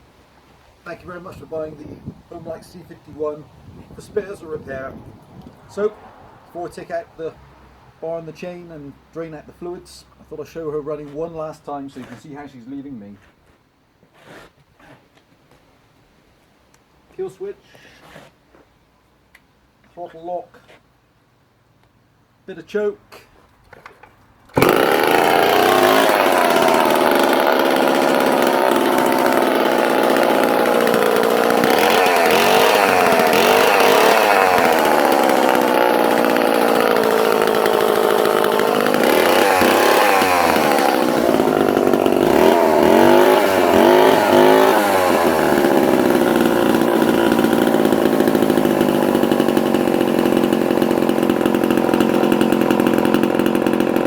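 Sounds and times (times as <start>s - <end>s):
chainsaw engine revving and idling: 24.6s - 54.0s.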